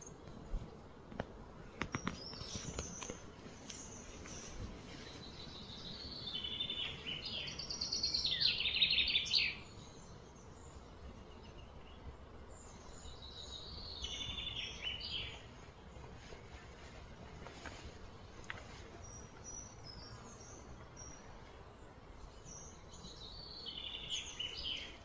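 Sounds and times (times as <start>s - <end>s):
faint outdoor hiss: 0.0s - 25.0s
bird trilling chirps: 5.6s - 9.7s.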